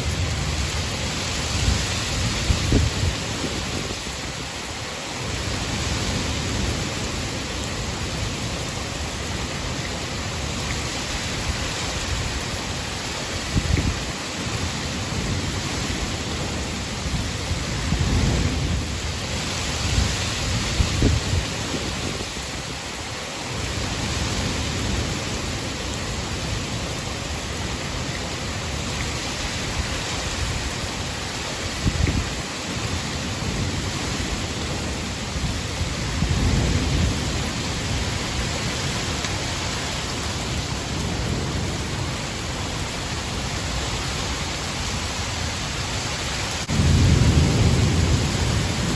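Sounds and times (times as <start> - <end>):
heavy rain hiss: 0.0 - 48.9
thunder rolling: 46.6 - 48.9.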